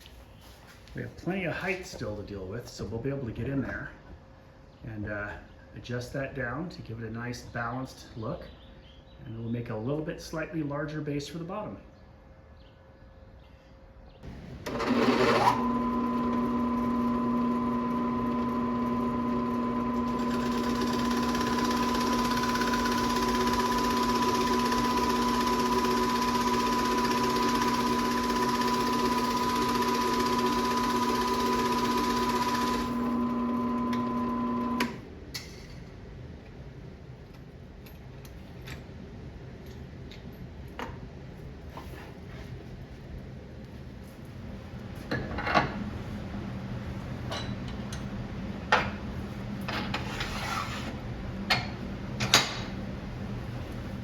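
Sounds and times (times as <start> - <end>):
power tool motor whining: 14.3 - 35.0.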